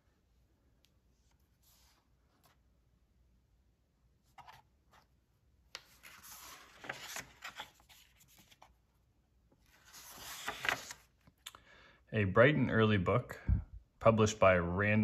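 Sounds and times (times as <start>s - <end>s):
paper pages rustling: 4.3s - 11.4s.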